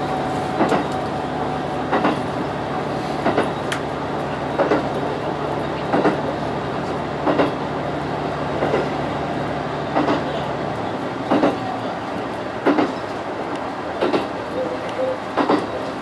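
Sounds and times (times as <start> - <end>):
train rumbling: 0.0 - 16.0
wheels clacking over rail joints: 1.8 - 2.4, 9.9 - 16.0.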